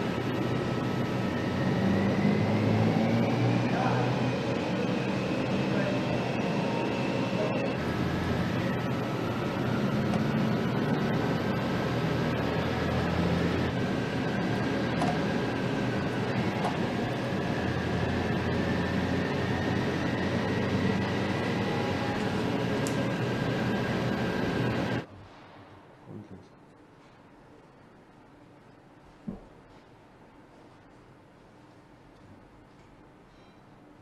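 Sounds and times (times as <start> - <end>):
faint high whining tones: 0.0 - 25.1
mechanical hum and hiss: 21.3 - 34.0.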